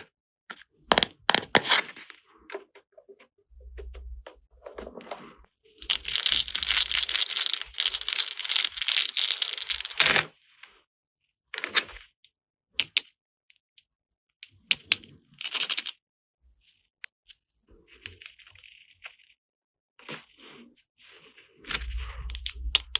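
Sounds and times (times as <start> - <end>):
plastic toy parts clicking and rattling: 5.8 - 10.2, 22.3 - 22.9.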